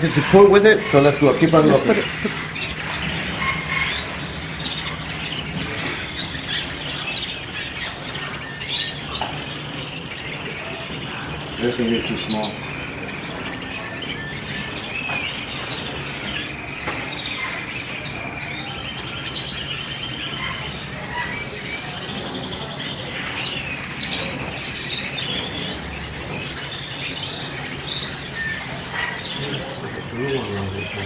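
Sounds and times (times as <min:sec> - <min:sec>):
birds chirping and trilling: 0:00.0 - 0:31.0.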